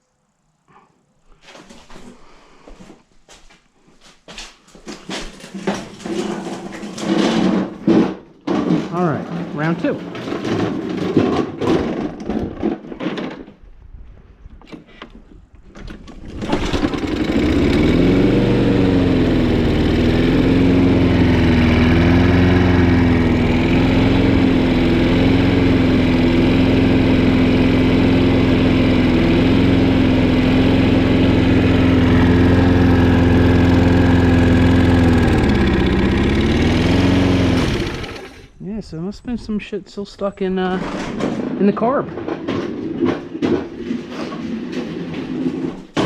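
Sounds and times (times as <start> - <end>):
lawn mower engine running: 15.7 - 38.6.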